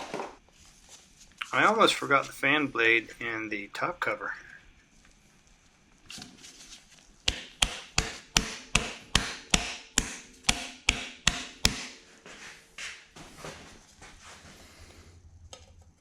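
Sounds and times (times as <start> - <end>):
hammer striking metal part: 7.3 - 12.0.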